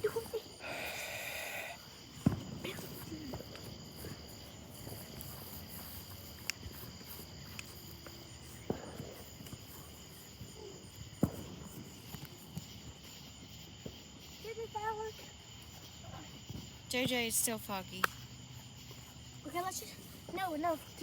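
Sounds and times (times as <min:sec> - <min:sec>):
crickets chirping: 0:00.0 - 0:21.0
sharp pops: 0:11.1 - 0:12.4, 0:17.9 - 0:18.3.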